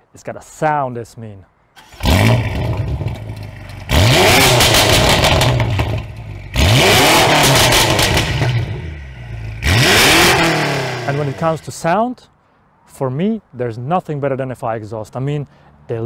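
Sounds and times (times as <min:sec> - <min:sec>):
exhaust crackling and popping: 0:01.8 - 0:11.6
car engine revving: 0:01.8 - 0:11.7.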